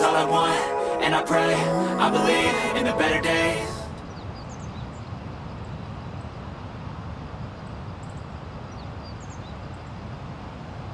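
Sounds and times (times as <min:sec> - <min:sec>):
wind: 0:02.3 - 0:10.9.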